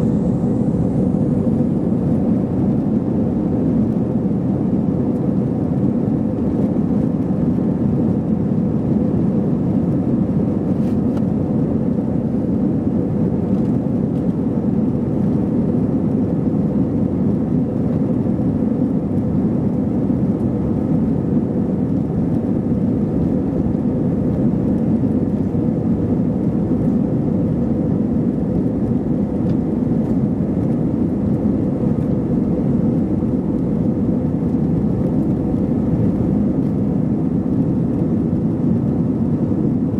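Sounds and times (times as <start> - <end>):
faint hum: 0.0 - 4.1
jet engine cabin drone: 0.0 - 39.9.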